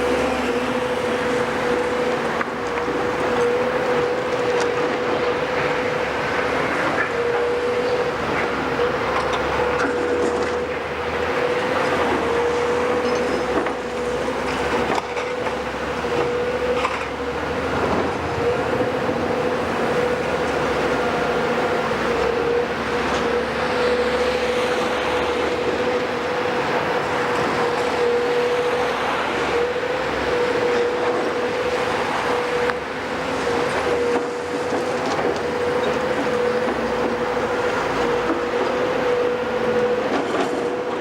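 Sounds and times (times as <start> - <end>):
excavator engine and hydraulics: 0.0 - 41.0.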